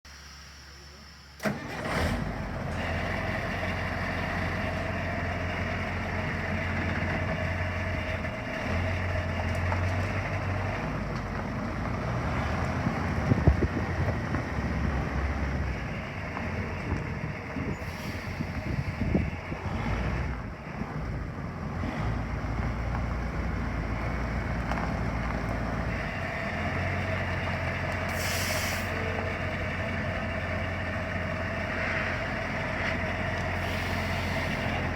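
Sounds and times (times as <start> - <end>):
truck engine starting and idling: 0.1 - 34.9
brief hiss: 28.1 - 29.0, 33.6 - 34.8.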